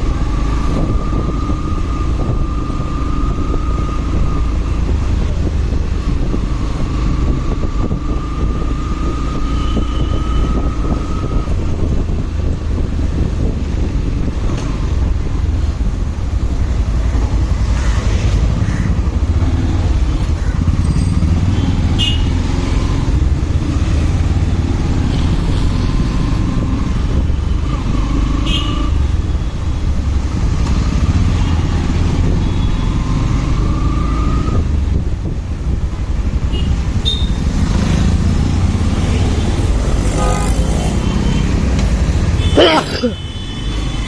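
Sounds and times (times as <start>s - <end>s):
wind rumble on microphone: 0.0s - 20.4s, 33.2s - 42.3s
high chirps from traffic: 36.6s - 37.6s
motorcycle engine: 36.6s - 43.2s.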